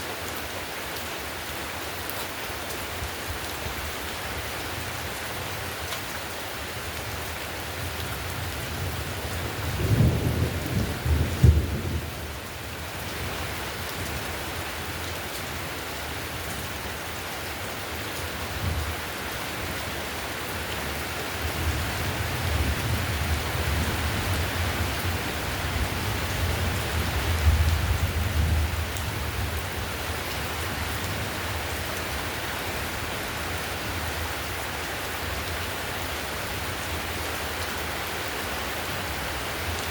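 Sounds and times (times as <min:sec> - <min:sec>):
heavy rain on a tiled roof: 0:00.0 - 0:39.9
thunder rumbling: 0:09.6 - 0:12.2.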